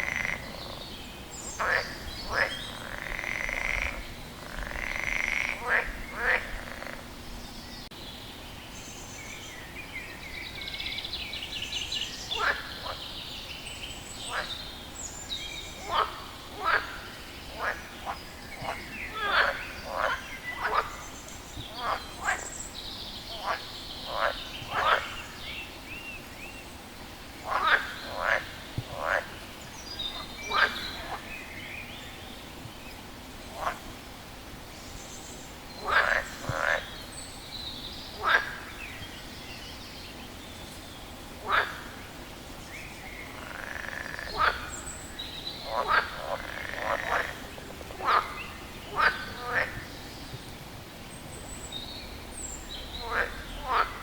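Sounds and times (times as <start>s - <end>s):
frog calling: 0.0s - 7.1s, 12.4s - 13.0s, 15.8s - 22.5s, 23.3s - 25.4s, 27.4s - 31.3s, 35.8s - 37.0s, 38.2s - 38.9s, 41.4s - 42.1s, 43.2s - 50.0s, 52.9s - 54.0s.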